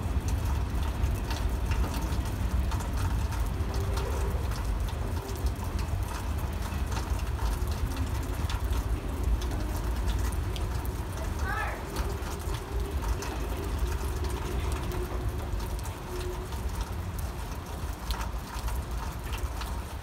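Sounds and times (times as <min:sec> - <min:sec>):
freight train rumbling: 0:00.0 - 0:18.5.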